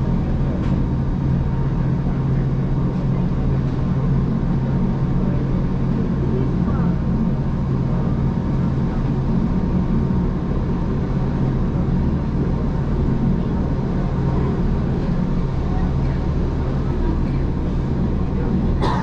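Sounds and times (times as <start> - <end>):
electric train rumbling on track: 0.0 - 19.0.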